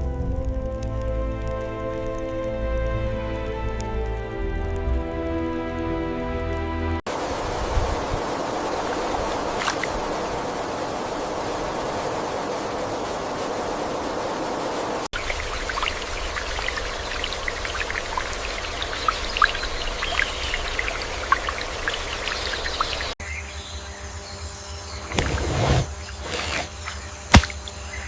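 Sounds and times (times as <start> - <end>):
low water rumble: 7.1 - 23.2
rushing stream: 7.1 - 23.2, 25.1 - 27.7
high-pitched water splashes: 8.1 - 10.6, 14.8 - 23.2, 26.2 - 27.8.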